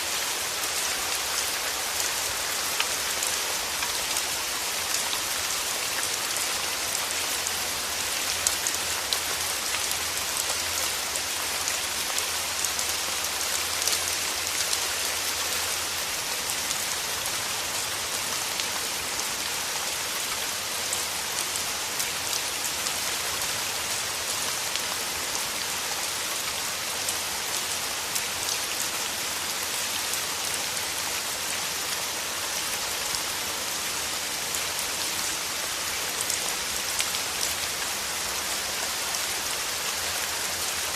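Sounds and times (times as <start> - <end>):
rain falling through trees: 0.0 - 40.9.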